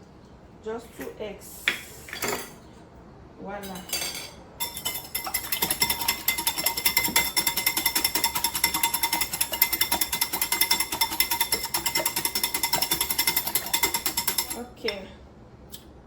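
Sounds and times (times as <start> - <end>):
whisk beating eggs in a bowl: 4.6 - 14.9.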